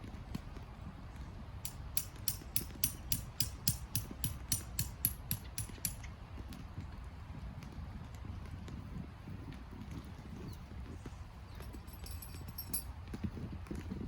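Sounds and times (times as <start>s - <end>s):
ratchet mechanism clicking: 1.7s - 6.1s.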